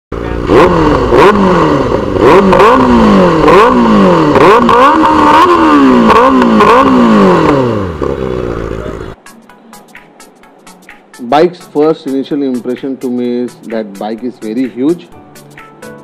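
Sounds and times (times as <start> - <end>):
motorcycle engine revving: 0.1 - 9.2.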